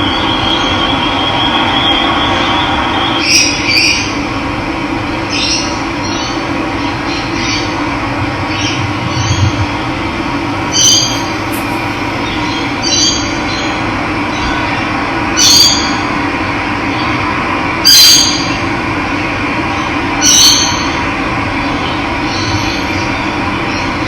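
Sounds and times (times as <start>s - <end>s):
bird calling loudly: 10.6s - 13.2s.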